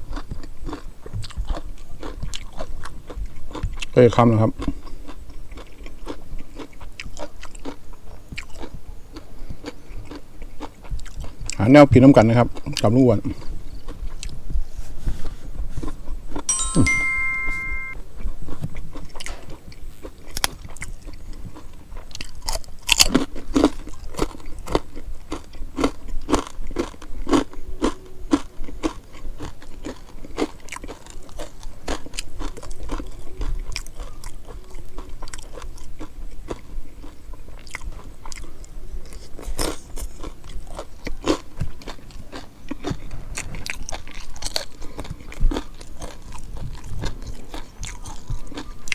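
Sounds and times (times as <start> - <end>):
chewing and crunching food: 0.0 - 16.6, 18.0 - 48.9
short chime: 16.5 - 18.0.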